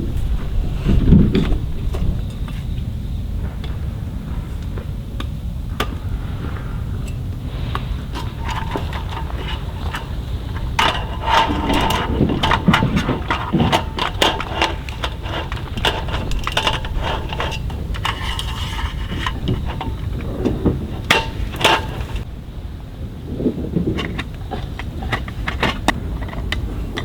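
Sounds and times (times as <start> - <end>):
steady low rumble: 0.0 - 27.0
cooking gear knocks and clinks: 8.1 - 22.3.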